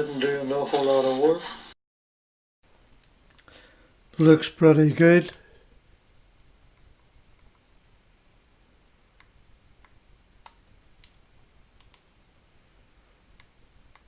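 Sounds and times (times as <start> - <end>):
faint sharp clicks: 9.2 - 11.2, 11.8 - 12.1.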